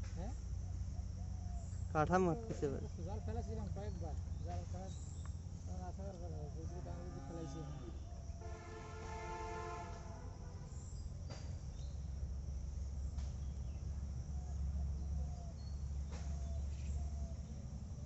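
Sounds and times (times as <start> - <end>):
continuous low rumble: 0.0 - 18.0
distant horn chord: 6.6 - 10.8.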